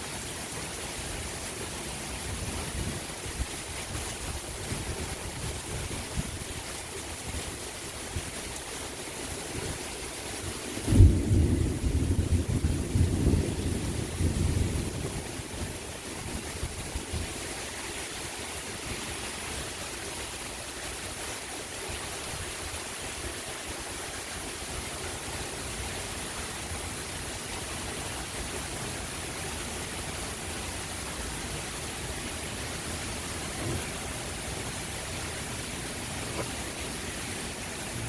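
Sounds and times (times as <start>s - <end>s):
heavy rain hissing: 0.0s - 38.0s
thunder rumbling: 10.8s - 16.5s.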